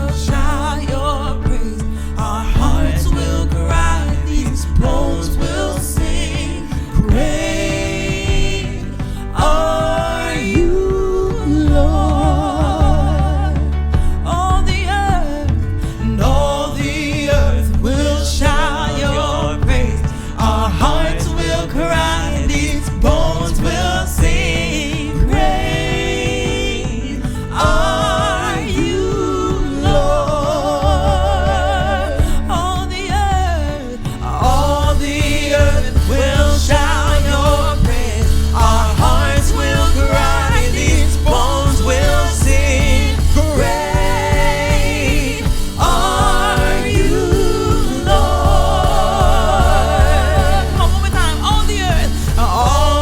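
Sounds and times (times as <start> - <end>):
band accompaniment: 0.0 - 53.0
singers holding long notes: 0.0 - 53.0
steady bass line: 0.0 - 53.0.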